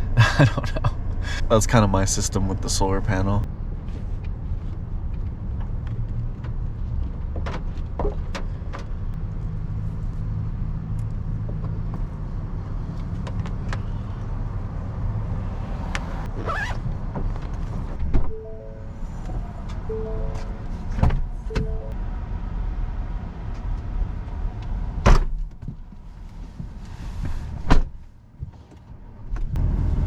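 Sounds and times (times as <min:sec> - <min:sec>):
low vehicle rumble: 0:08.2 - 0:25.1, 0:29.2 - 0:30.0
short tones: 0:18.3 - 0:22.0.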